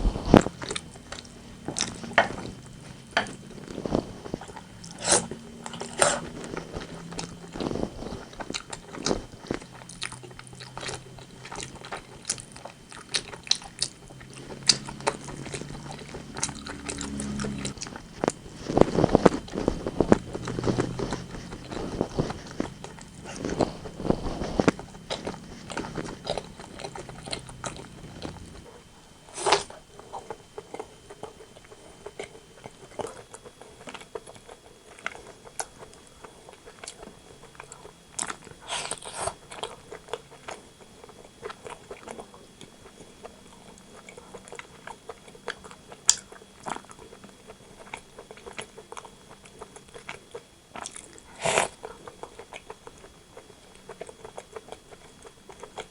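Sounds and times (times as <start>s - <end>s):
chewing chicken: 0.0s - 55.9s.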